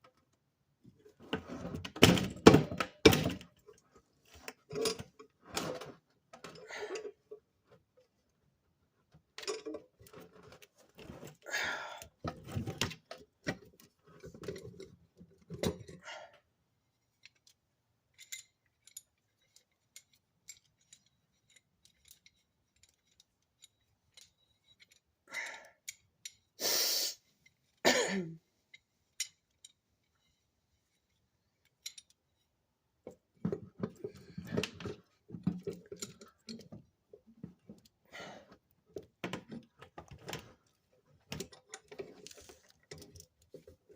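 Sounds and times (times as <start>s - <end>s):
metal tools clicking and rattling: 2.7s - 7.4s, 9.4s - 11.3s, 17.1s - 26.6s, 28.7s - 32.5s, 33.1s - 38.0s, 41.2s - 43.9s.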